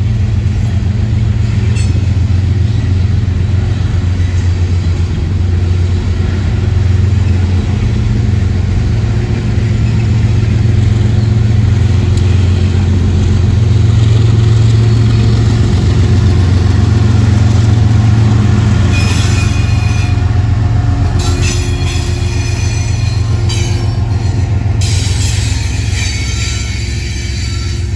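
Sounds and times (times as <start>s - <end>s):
freight train rolling past: 0.0s - 27.9s
locomotive engine drone: 0.0s - 27.9s
high-pitched wheel squeal: 18.9s - 20.3s, 21.2s - 27.9s.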